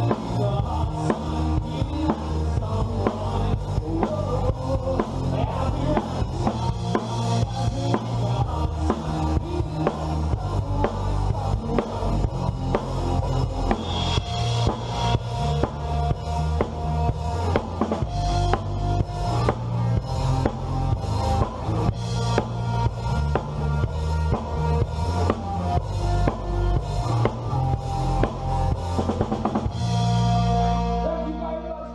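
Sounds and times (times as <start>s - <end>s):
drum kit steady beat: 0.0s - 31.0s
bass line: 0.0s - 31.9s
held pitched notes: 12.1s - 31.8s.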